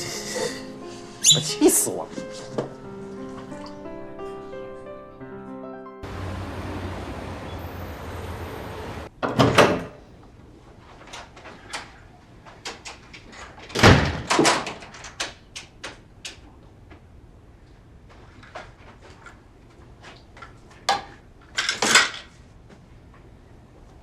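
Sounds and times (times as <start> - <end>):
door banging shut: 9.2 - 10.0, 13.7 - 14.9.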